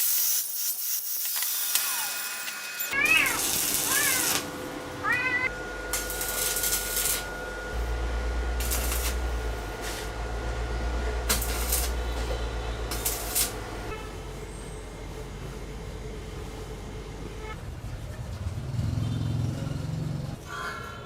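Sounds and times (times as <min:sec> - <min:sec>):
cat meowing: 0:03.0 - 0:04.4, 0:05.0 - 0:05.5
low steady hum: 0:04.5 - 0:17.9.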